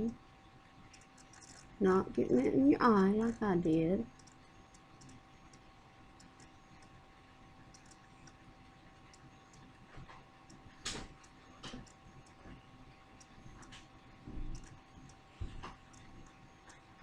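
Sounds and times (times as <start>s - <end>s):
faint regular ticking: 0.0s - 17.0s
faint steady hum: 0.0s - 17.0s
sharp clicks: 4.1s - 5.6s, 7.7s - 8.4s, 10.5s - 12.4s, 14.5s - 16.8s.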